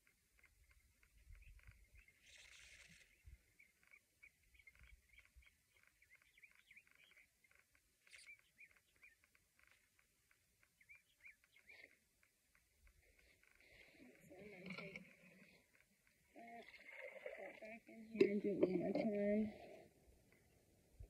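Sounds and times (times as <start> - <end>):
distant birds chirping: 0.0 - 21.0.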